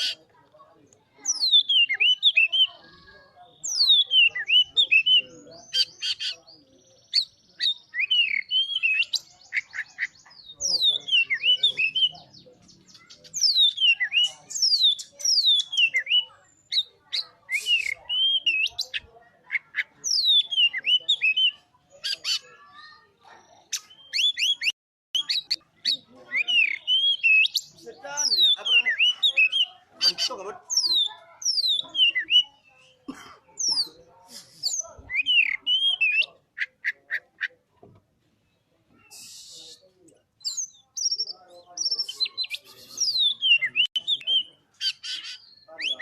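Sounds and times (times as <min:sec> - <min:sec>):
bird singing whistles: 0:17.5 - 0:18.8.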